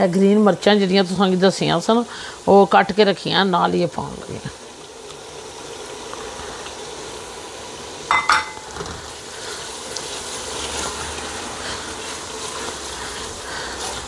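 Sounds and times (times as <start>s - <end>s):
masala sizzling in a pot: 0.0s - 14.0s
spoon knocking a bowl: 8.1s - 8.7s.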